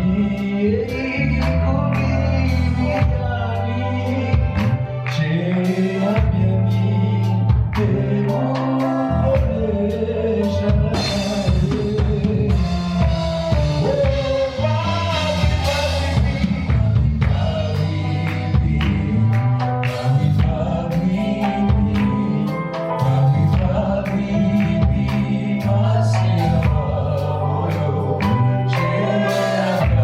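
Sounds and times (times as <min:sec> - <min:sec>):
band playing worship music: 0:00.0 - 0:30.0
voices singing: 0:00.0 - 0:30.0.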